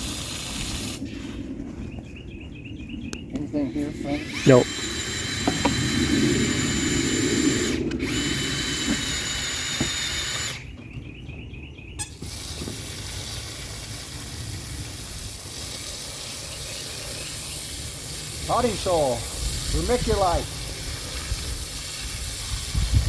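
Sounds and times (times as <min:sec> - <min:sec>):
power drill auger churning soil: 0:03.8 - 0:10.7, 0:12.1 - 0:23.0.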